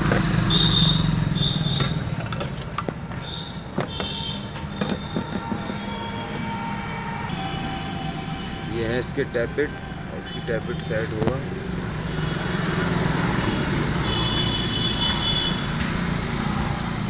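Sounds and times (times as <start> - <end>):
vehicle engine running: 0.0 - 6.8
sharp metallic clicks: 0.0 - 6.9.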